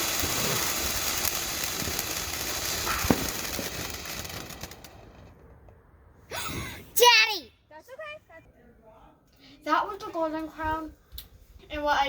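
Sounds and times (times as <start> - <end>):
fountain firework hissing: 0.0 - 5.4
firework crackles: 0.0 - 6.5
sharp pop: 2.8 - 3.6.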